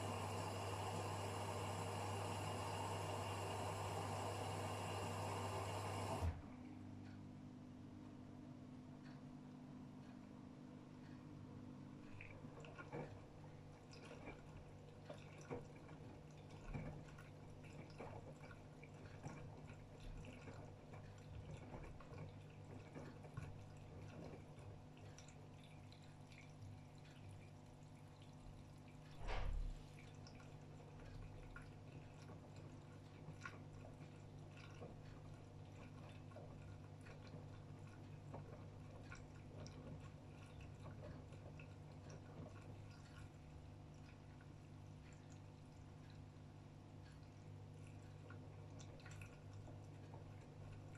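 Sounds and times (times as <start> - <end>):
water sloshing in washing machine: 0.0 - 6.9, 10.0 - 50.9
washing machine hum: 0.0 - 50.9
washing machine thud: 29.2 - 29.8.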